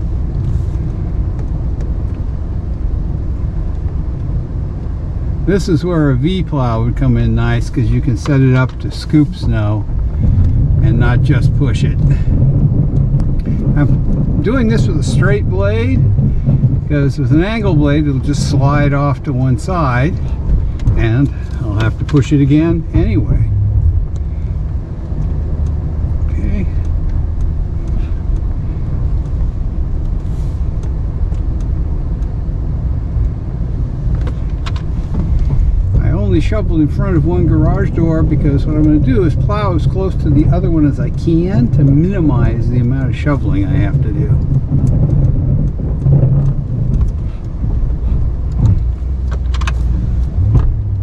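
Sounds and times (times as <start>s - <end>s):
truck engine rumbling: 0.0s - 51.0s
faint ticks: 23.4s - 36.3s, 41.1s - 51.0s.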